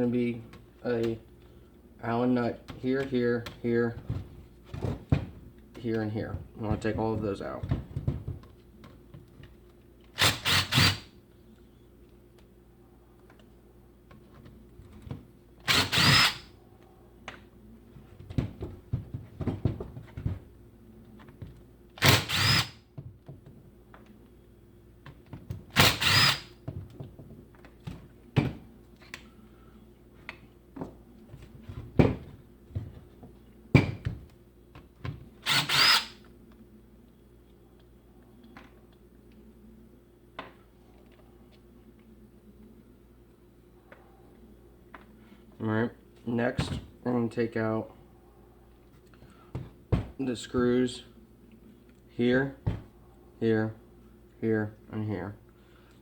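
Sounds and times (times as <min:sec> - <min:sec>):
power drill running: 0:10.2 - 0:11.1, 0:15.6 - 0:16.5, 0:22.0 - 0:22.8, 0:25.8 - 0:26.5, 0:35.4 - 0:36.2.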